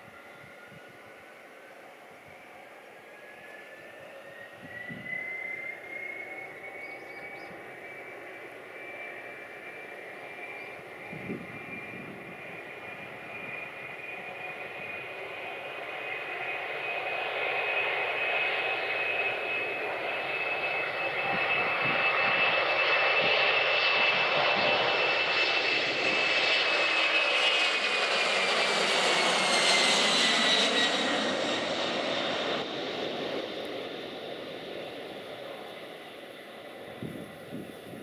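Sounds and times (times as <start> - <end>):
jet airliner taking off: 0.0 - 38.0.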